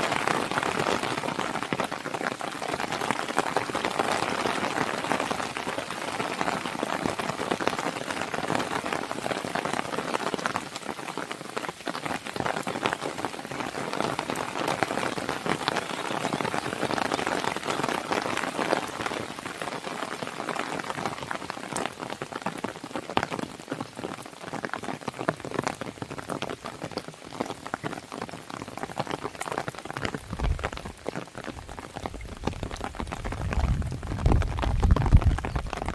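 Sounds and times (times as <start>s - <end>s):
rain on a window: 0.0s - 35.9s
fire crackling: 29.8s - 35.9s.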